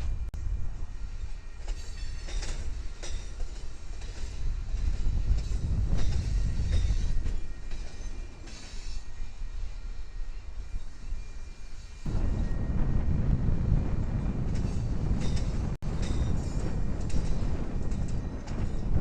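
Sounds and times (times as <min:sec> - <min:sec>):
railroad cars rumbling: 0:00.0 - 0:19.0
faint high wheel squeal: 0:00.9 - 0:03.4, 0:05.0 - 0:12.7.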